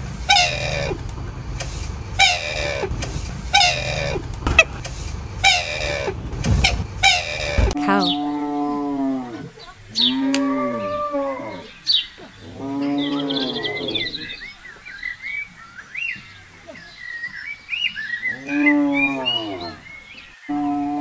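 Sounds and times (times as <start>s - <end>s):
small birds chirping: 0.0s - 21.0s
cow mooing: 7.1s - 11.7s, 12.4s - 14.4s, 20.5s - 21.0s.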